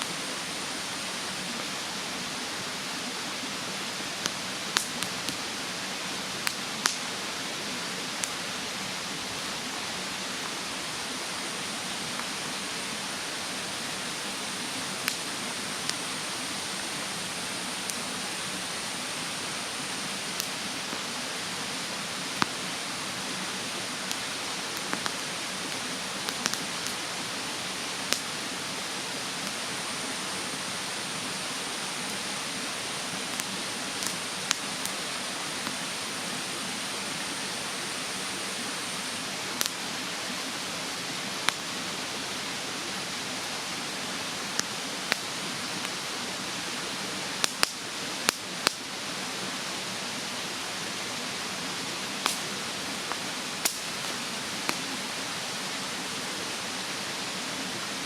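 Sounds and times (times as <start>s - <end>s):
mountain stream rushing: 0.0s - 58.0s
wood fire crackling and popping: 4.2s - 5.4s, 6.4s - 7.0s, 8.2s - 8.4s, 14.9s - 18.5s, 22.3s - 22.6s, 23.4s - 29.6s, 31.7s - 36.0s, 39.6s - 39.8s, 44.5s - 46.1s, 47.4s - 48.8s, 52.2s - 54.9s.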